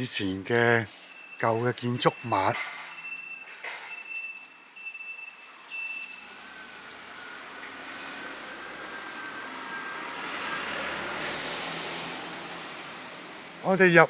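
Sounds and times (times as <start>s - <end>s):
road vehicle approaching: 0.0s - 14.0s.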